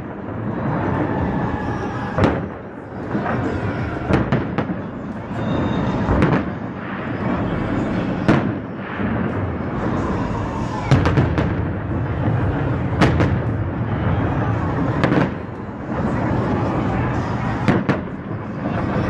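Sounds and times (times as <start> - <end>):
steady wash of noise: 0.0 - 19.0
firework shells booming: 2.2 - 10.0, 10.8 - 16.4, 17.2 - 18.2.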